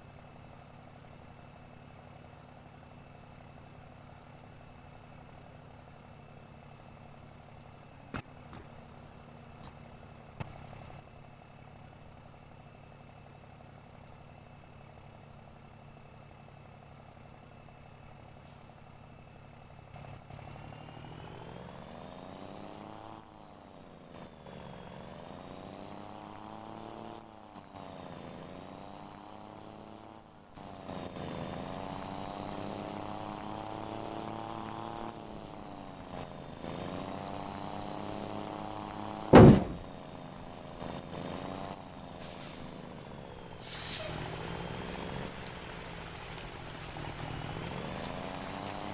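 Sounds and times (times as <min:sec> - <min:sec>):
truck pulling away shifting gears: 0:19.9 - 0:48.9
truck engine idling: 0:39.3 - 0:40.8
air hiss: 0:42.2 - 0:44.4.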